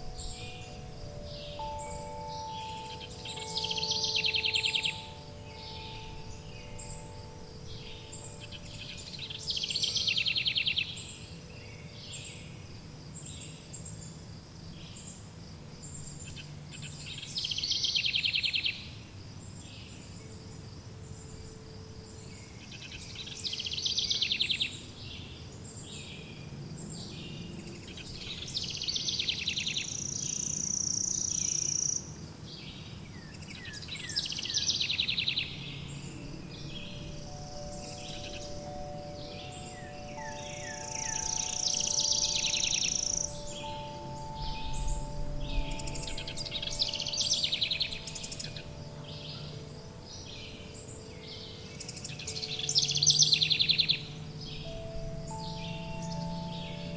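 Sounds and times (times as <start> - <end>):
faint wind chimes: 0.0 - 56.9
songbirds trilling: 0.0 - 56.9
low ambient hum: 33.4 - 56.9.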